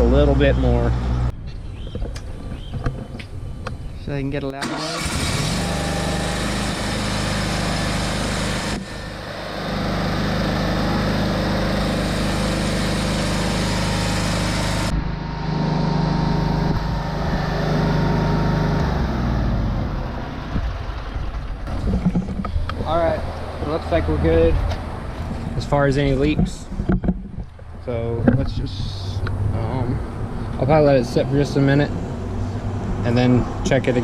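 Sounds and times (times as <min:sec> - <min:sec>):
mower engine running: 0:04.6 - 0:21.0.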